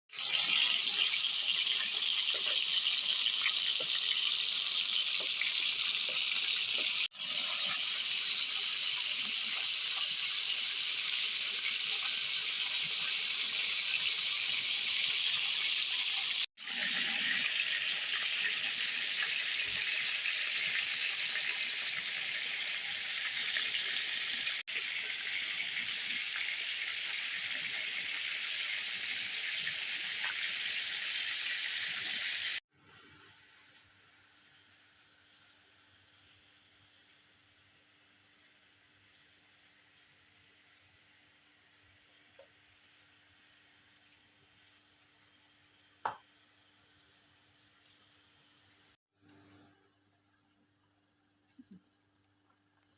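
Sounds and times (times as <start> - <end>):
meat sizzling over a grill: 0.1 - 32.6.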